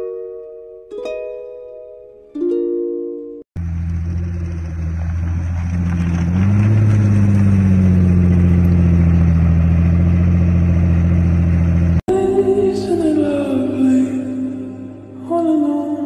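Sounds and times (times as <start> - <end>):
car engine idling: 3.6 - 12.1.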